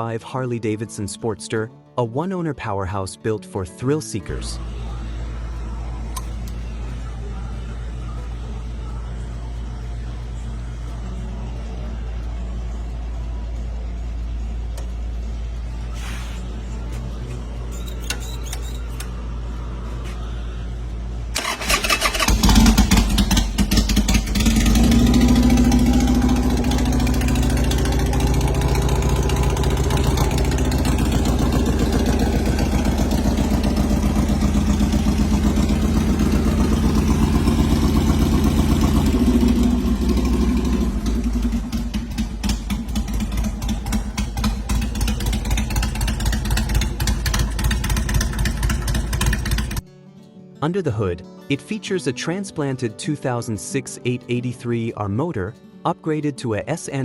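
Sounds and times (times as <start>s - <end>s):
motorcycle engine revving: 21.4s - 49.8s.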